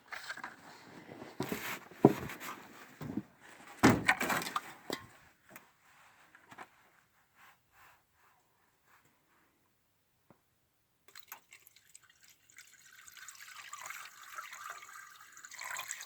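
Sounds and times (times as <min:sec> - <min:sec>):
tools and parts clattering: 0:03.8 - 0:05.2.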